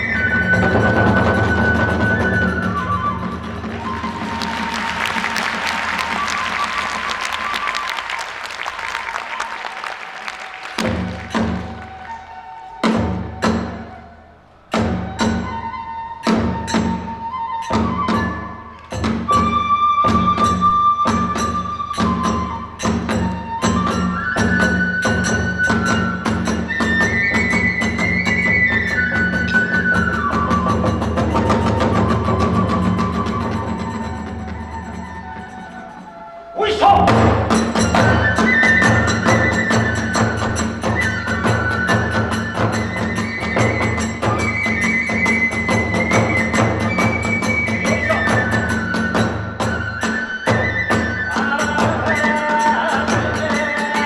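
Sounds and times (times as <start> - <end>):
bamboo flute melody: 0.0 - 54.0
drums beating fast: 0.6 - 12.1, 36.8 - 49.6
drum beat: 3.5 - 11.9.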